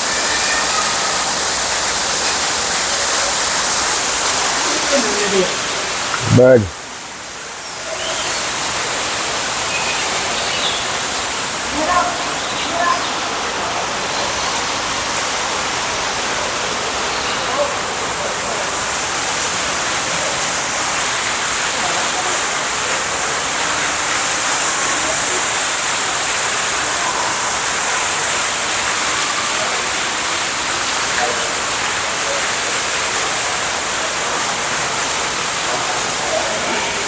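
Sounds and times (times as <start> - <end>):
falling water rushing: 0.0 - 37.0.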